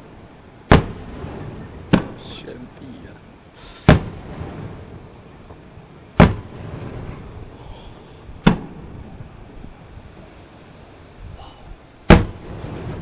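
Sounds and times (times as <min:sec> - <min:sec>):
firework booms: 0:00.0 - 0:10.3, 0:12.0 - 0:13.0
firework hiss: 0:00.0 - 0:13.0.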